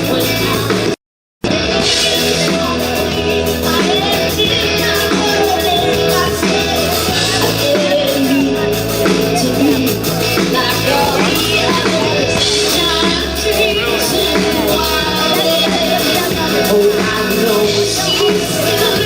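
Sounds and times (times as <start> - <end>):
live band playing: 0.0 - 0.9, 1.5 - 19.0
bass line: 1.5 - 19.0.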